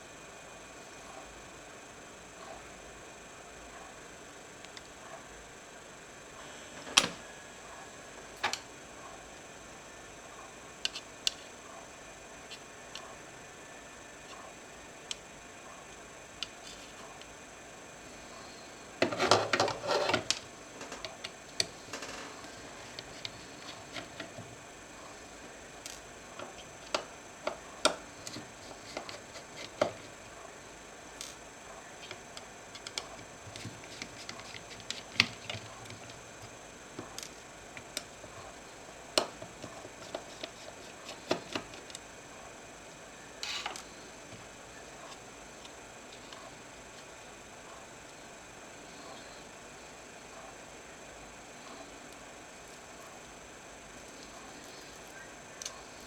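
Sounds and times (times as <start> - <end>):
small laptop parts clicking: 32.0 - 38.3.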